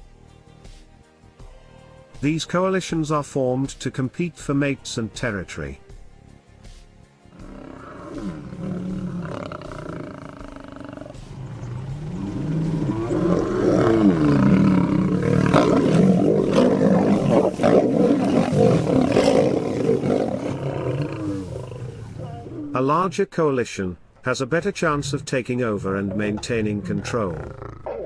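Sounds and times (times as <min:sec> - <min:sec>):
lion roaring: 0:07.4 - 0:22.8, 0:26.8 - 0:28.0.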